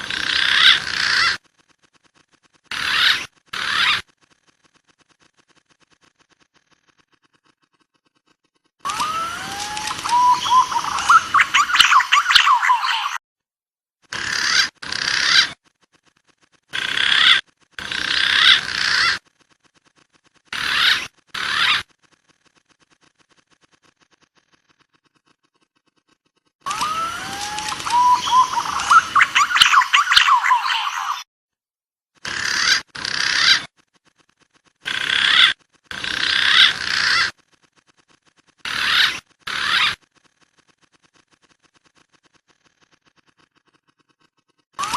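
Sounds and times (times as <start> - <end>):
recorded pigeon whistle calls: 8.9 - 13.2, 26.7 - 31.2.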